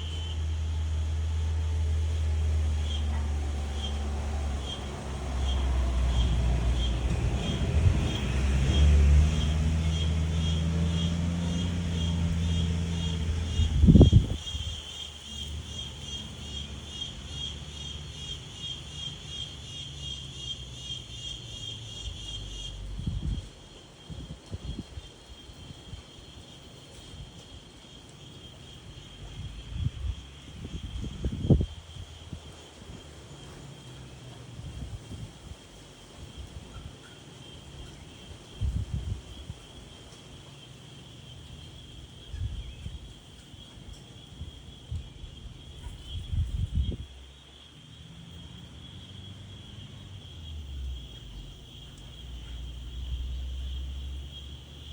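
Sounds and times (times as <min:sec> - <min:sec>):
insects chirring: 0:00.0 - 0:54.9
wind gusts rumbling: 0:03.3 - 0:17.5, 0:22.4 - 0:26.4, 0:29.0 - 0:37.0, 0:37.6 - 0:40.0, 0:41.0 - 0:54.9.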